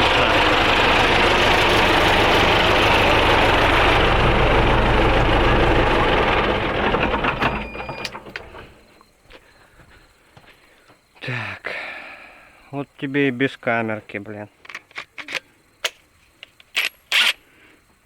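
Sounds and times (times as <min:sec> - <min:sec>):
engine running: 0:00.0 - 0:09.0
engine clicks: 0:05.4 - 0:09.0.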